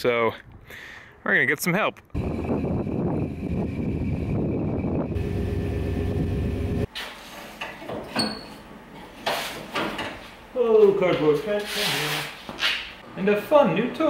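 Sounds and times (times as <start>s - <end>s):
car engine rumbling: 2.2s - 6.9s.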